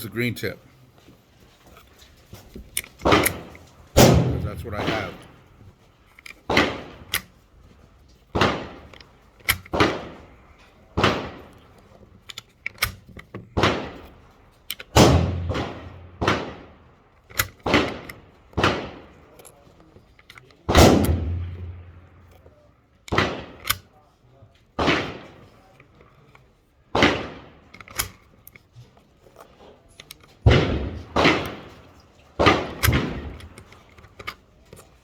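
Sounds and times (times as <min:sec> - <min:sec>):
gunshots with echo: 0:03.0 - 0:05.4, 0:08.3 - 0:08.8, 0:13.6 - 0:14.1, 0:15.0 - 0:16.8, 0:17.6 - 0:19.2, 0:20.7 - 0:22.3, 0:23.1 - 0:23.6, 0:24.8 - 0:25.4, 0:26.9 - 0:27.7, 0:30.4 - 0:33.6.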